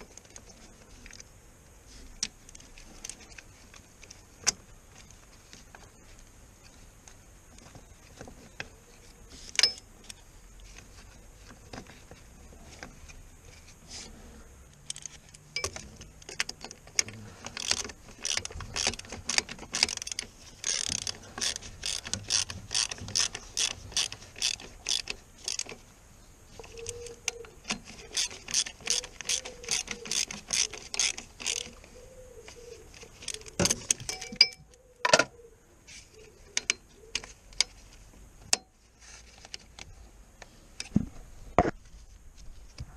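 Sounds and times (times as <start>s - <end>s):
hand ratchet clicking: 14.8s - 25.8s, 26.7s - 31.8s.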